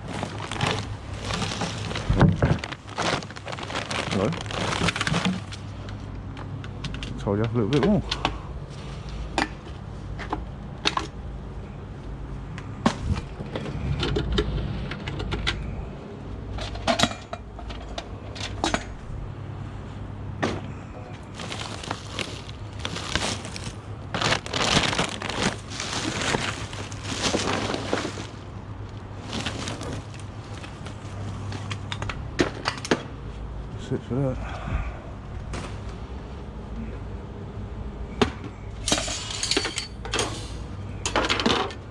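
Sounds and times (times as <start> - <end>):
rubbish being handled: 0.0 - 6.0, 20.5 - 33.0
rustling and clatter: 0.0 - 11.2, 20.4 - 33.1
steady low hum: 0.0 - 38.8.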